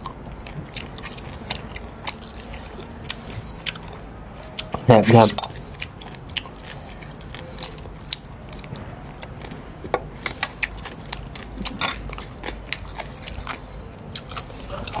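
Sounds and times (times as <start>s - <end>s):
wet mouth clicks: 0.0s - 4.8s
chewing crunchy salad: 0.0s - 15.0s.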